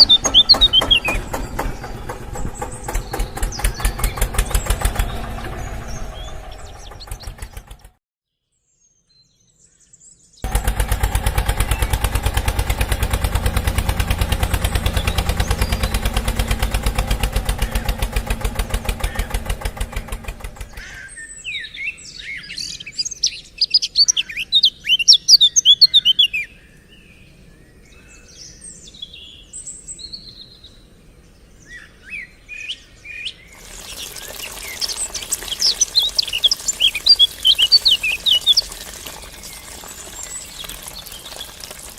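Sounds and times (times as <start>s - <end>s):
birds chirping: 0.0s - 7.9s, 9.5s - 41.9s
small engine running: 0.0s - 8.0s, 10.4s - 21.0s, 33.6s - 41.9s.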